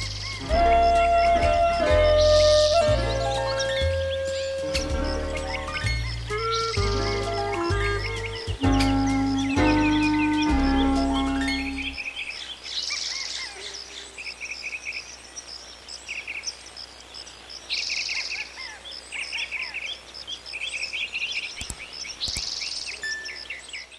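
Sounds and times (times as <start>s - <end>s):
background music: 0.0s - 12.2s
songbirds chirping: 0.0s - 23.9s.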